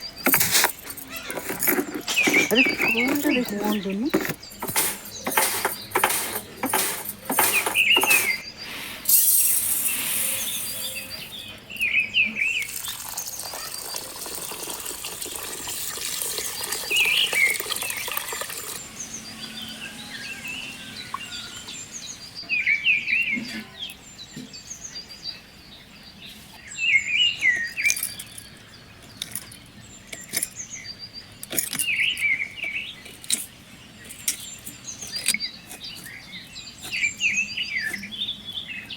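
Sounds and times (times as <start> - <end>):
bird chirping: 0.0 - 38.9
knocks and clatter: 0.2 - 8.4
hissing noise: 4.6 - 11.3.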